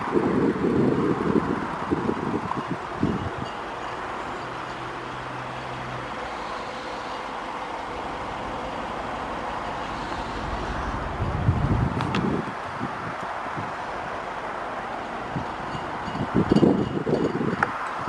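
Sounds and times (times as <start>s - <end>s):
wind buffeting microphone: 0.0s - 4.2s, 9.4s - 14.3s, 15.1s - 18.0s
outdoor background noise: 0.0s - 18.0s.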